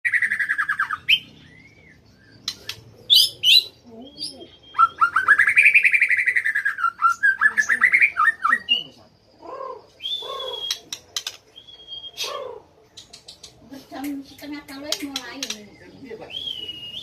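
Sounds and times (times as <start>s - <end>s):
songbird trilling: 0.1s - 13.6s
bird chirps: 0.1s - 17.0s.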